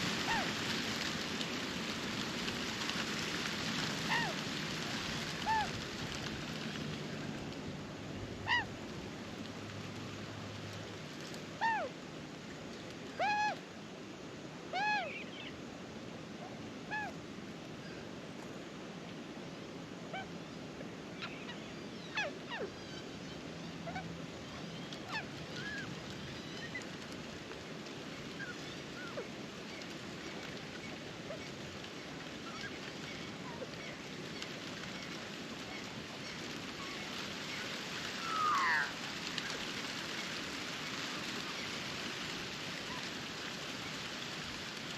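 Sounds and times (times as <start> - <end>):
steady hiss: 0.0 - 44.9
arched bird calls: 38.2 - 39.0.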